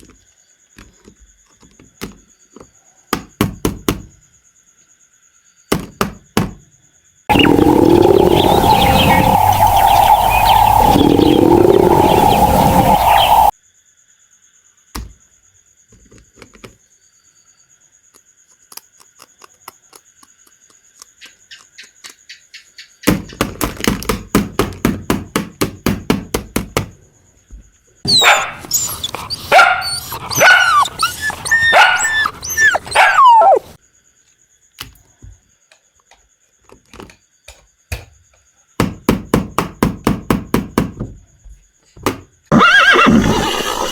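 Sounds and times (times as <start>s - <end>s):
dog barking and yelping: 28.1s - 33.8s.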